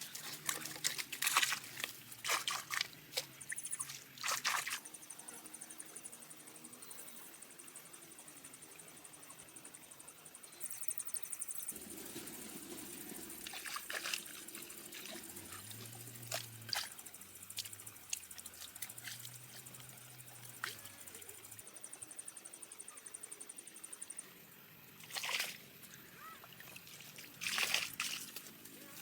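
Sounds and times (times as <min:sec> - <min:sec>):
water splashing and trickling: 0:00.0 - 0:05.1, 0:11.7 - 0:21.7, 0:24.4 - 0:29.0.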